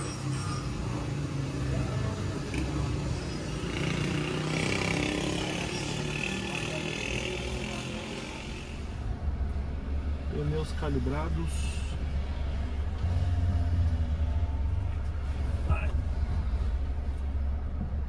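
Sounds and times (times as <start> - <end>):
car engine rumbling: 8.2 - 18.0.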